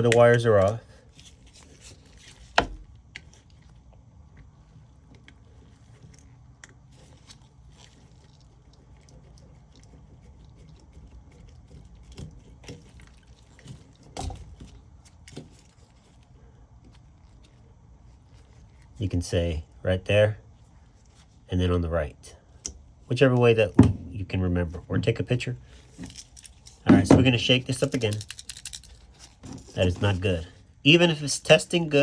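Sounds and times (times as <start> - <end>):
hands handling wiring: 0.0 - 8.3, 11.3 - 19.0, 22.5 - 30.7
faint low hum: 0.0 - 32.0.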